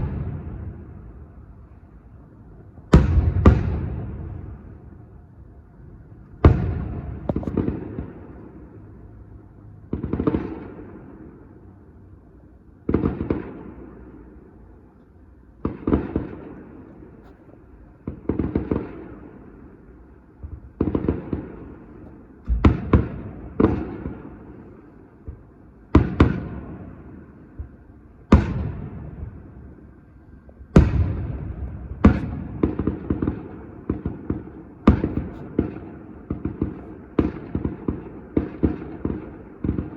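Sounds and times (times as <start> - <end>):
fireworks exploding: 2.9 - 4.7, 6.4 - 8.4, 20.5 - 24.6, 30.7 - 39.9.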